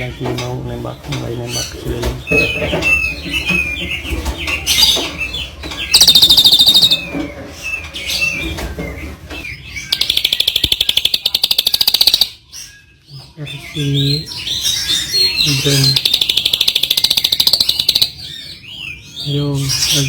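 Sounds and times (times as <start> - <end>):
songbird chirping: 0.0 - 20.0
fast rattling bird trills: 5.8 - 7.3, 9.8 - 12.7, 14.4 - 18.6.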